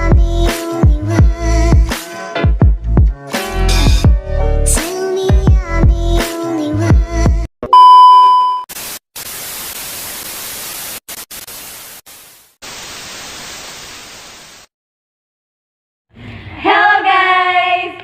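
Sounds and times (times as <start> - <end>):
loud steady beep: 7.7 - 8.7
hissing static: 8.7 - 14.7.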